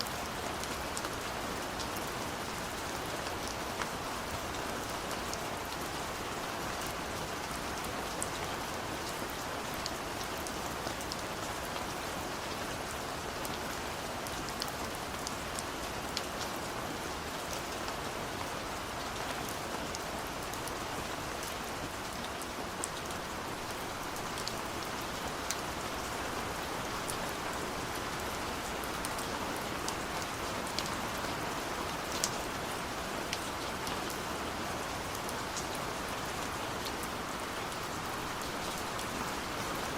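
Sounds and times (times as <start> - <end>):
rain drops ticking on surface: 0.0 - 39.9.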